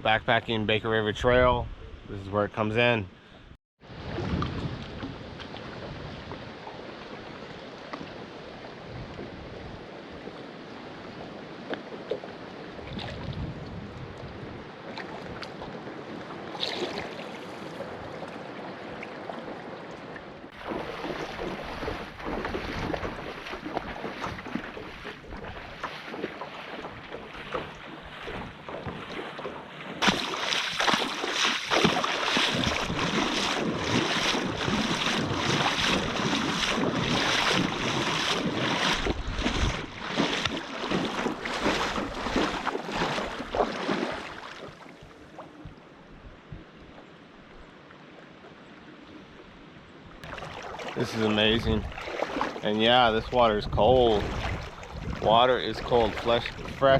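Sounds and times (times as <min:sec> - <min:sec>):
wind on microphone: 0:03.9 - 0:07.4, 0:08.0 - 0:10.4, 0:12.7 - 0:16.1, 0:20.6 - 0:29.2, 0:31.7 - 0:44.3, 0:50.1 - 0:56.9
water rushing: 0:14.8 - 0:45.2, 0:50.2 - 0:56.9.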